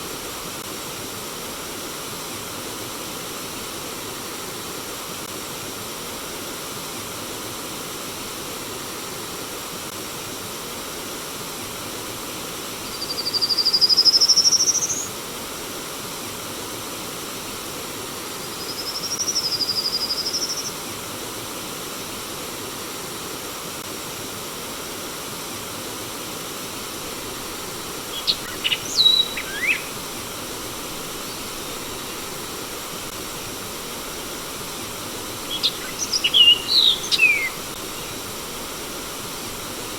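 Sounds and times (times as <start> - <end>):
stream water flowing: 21.1 - 39.9
bird calling: 28.0 - 32.9, 35.4 - 38.2.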